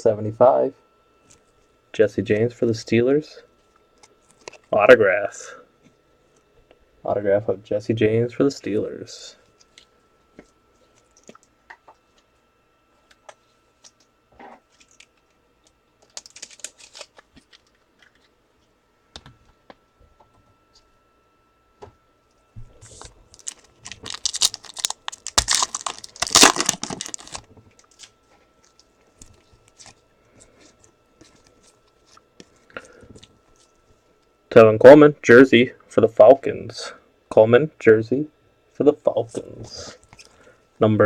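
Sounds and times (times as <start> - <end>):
cards clicking and rustling: 16.0 - 18.3, 22.9 - 30.0
wrapper crinkling and tearing: 16.0 - 18.3, 22.9 - 30.0.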